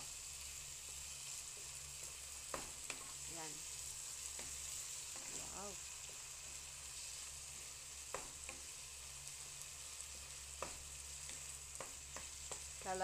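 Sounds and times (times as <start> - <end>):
meat sizzling in a frying pan: 0.0 - 13.0
spatula clicking against pan: 10.5 - 12.8.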